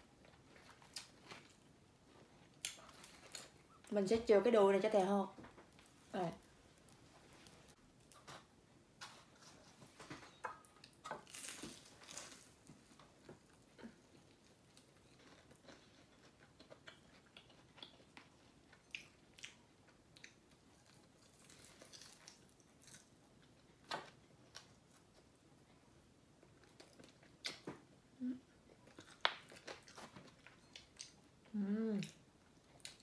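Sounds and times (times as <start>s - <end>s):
crunchy fried chicken being chewed: 10.8s - 25.3s, 28.7s - 31.3s.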